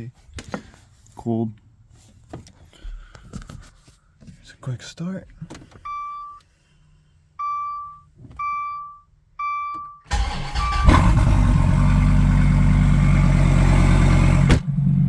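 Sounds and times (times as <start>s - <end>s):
car engine starting and idling: 10.1s - 15.0s.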